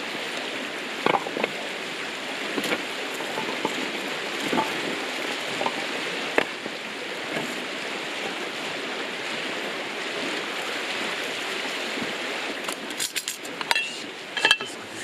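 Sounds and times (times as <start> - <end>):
river water rushing: 0.0 - 15.0
sharp clicks and clinks: 13.0 - 14.8.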